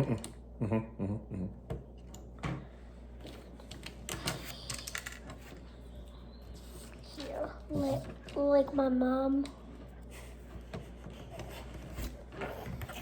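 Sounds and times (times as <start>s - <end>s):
people talking: 7.0s - 9.5s.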